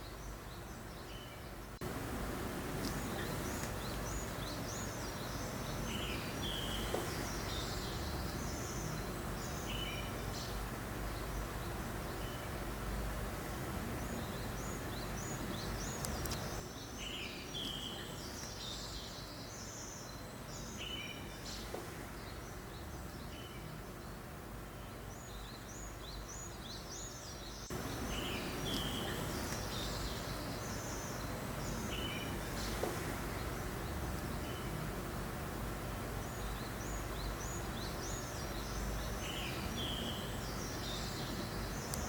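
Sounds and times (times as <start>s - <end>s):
breeze hiss: 0.0s - 42.0s
songbirds chirping: 0.0s - 42.0s.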